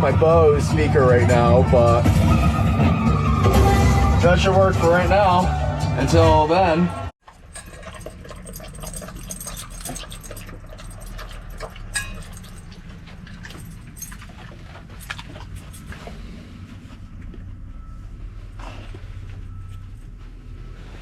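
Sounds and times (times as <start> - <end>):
small clicks and jingles: 7.2 - 16.2
dog panting: 7.3 - 16.7.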